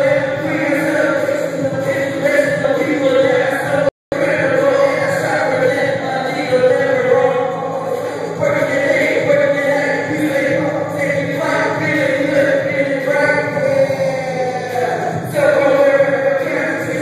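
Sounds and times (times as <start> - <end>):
voices singing together: 0.0 - 17.0.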